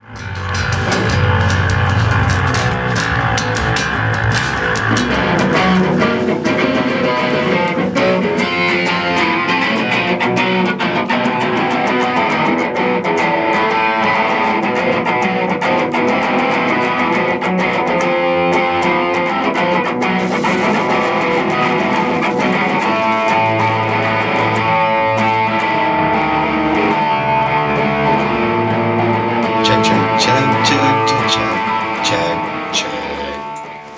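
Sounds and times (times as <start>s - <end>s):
punk band playing loud: 0.0s - 10.3s, 20.2s - 24.6s, 29.6s - 33.9s.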